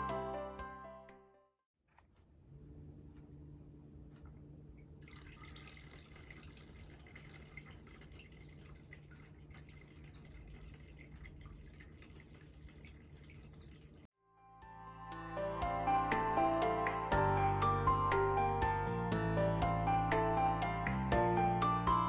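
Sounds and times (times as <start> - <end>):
small waterfall trickling: 5.0 - 14.1.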